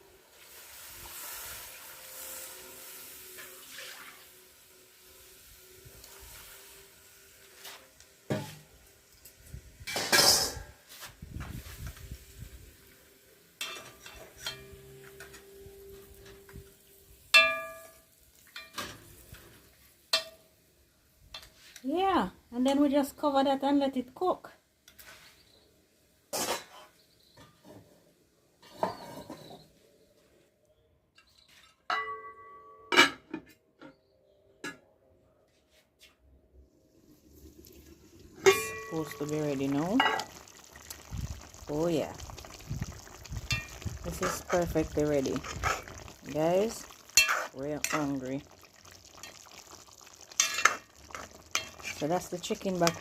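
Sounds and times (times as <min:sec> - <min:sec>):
metal clanking on a pot: 0:13.6 - 0:15.5, 0:17.4 - 0:19.1, 0:20.1 - 0:20.5, 0:38.4 - 0:40.4, 0:43.4 - 0:44.8, 0:46.8 - 0:48.2, 0:50.3 - 0:53.0.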